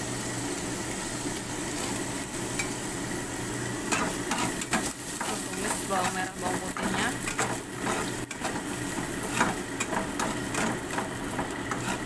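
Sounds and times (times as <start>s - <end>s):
shallots and garlic sizzling in oil: 0.0s - 12.0s
spatula scraping and clicking pan: 3.9s - 12.0s.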